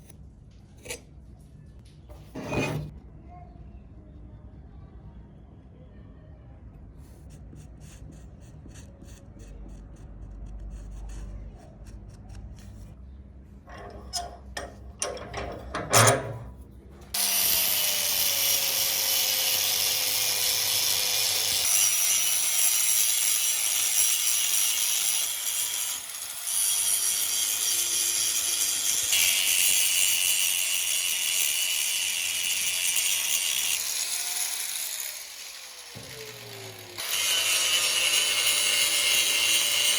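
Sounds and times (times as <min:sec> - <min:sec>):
power tool grinding: 0:17.1 - 0:39.9.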